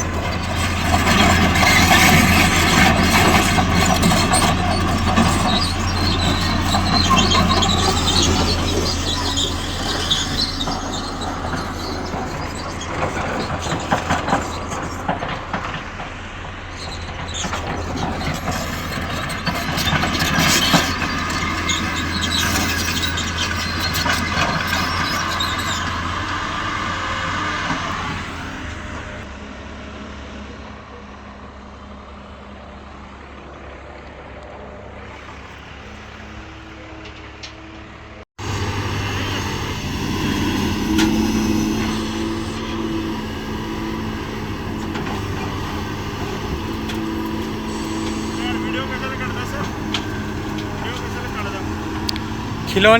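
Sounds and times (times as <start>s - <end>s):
heavy diesel engine running: 0.0s - 37.1s, 38.0s - 52.9s.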